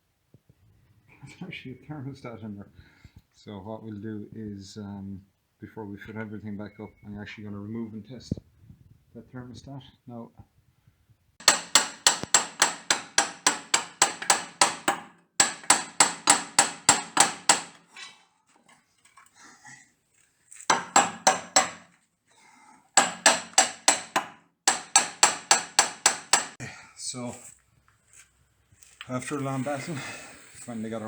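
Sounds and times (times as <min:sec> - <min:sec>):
rapid hammer blows on metal: 0:11.4 - 0:17.8, 0:23.0 - 0:26.6.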